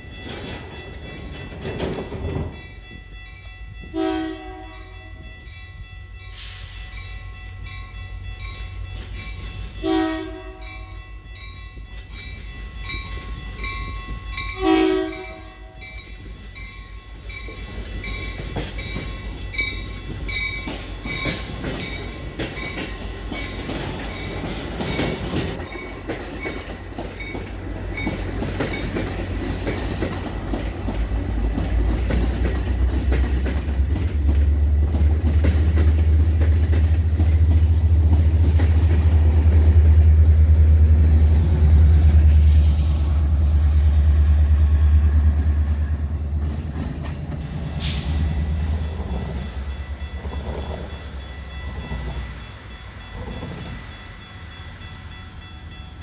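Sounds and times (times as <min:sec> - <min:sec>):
train rumbling past: 0:00.0 - 0:56.0
train horn blasts: 0:03.9 - 0:05.3, 0:09.8 - 0:11.0, 0:14.6 - 0:16.0.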